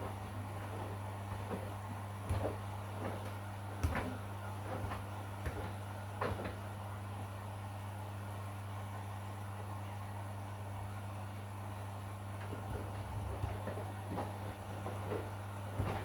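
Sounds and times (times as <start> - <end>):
washing machine motor hum: 0.0 - 16.0
laundry tumbling knocks: 12.5 - 16.0.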